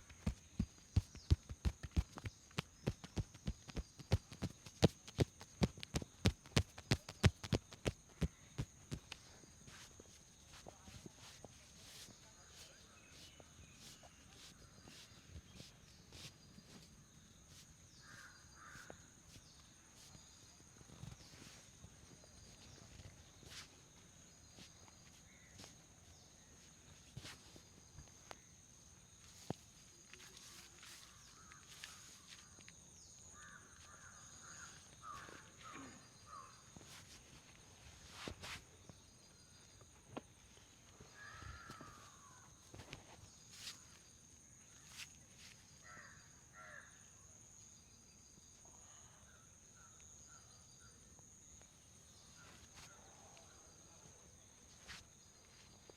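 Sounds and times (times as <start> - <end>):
hands tapping and rustling hair: 0.0 - 12.1
soft scratching strokes: 0.1 - 20.3.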